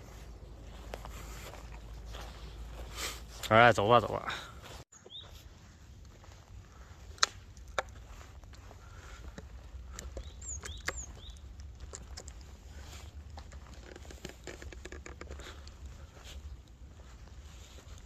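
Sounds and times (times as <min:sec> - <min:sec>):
footsteps crunching through leaves: 0:00.0 - 0:03.4
falling bird chirps: 0:04.9 - 0:05.4, 0:10.1 - 0:11.5.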